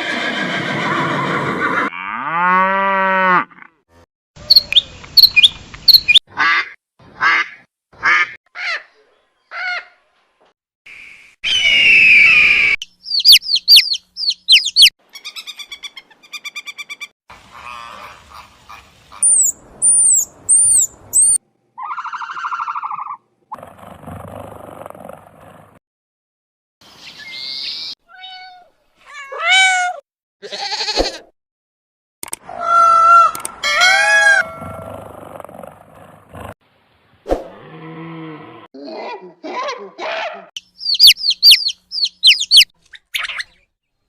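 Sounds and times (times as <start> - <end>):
bird chirps and trills: 4.5 - 6.2, 12.8 - 17.1, 19.2 - 21.4, 40.6 - 43.7
whistled bird notes: 10.9 - 14.9, 27.0 - 28.0
bird squawks: 13.1 - 23.1, 40.8 - 43.6.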